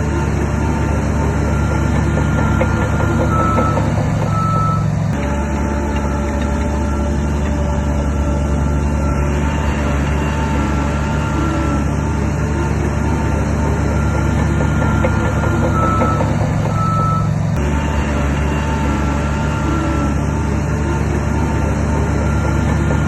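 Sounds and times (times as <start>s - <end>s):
diesel engine under load: 0.0s - 23.0s
reversing alarm beeping: 1.4s - 11.9s, 13.7s - 20.2s, 22.0s - 23.0s.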